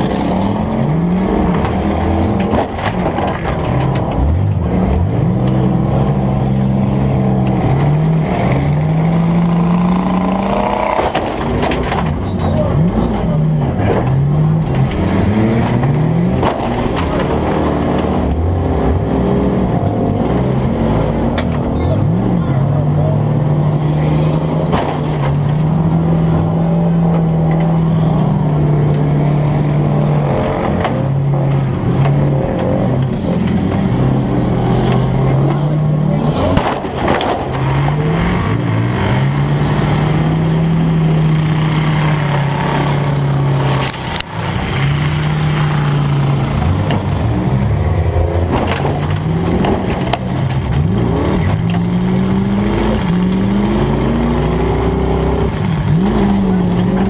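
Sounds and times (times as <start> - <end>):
car engine revving: 0.0 - 57.0
car crashes: 10.9 - 18.0, 24.6 - 26.4, 36.2 - 38.0, 48.4 - 50.8.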